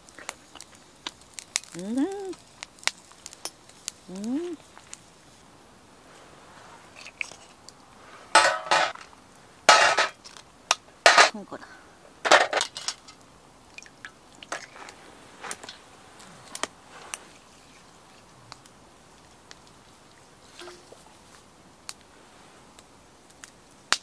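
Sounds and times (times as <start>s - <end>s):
campfire crackling: 0.0s - 24.0s
shells clattering onto metal tray: 8.4s - 9.0s, 9.7s - 10.2s, 12.3s - 13.1s.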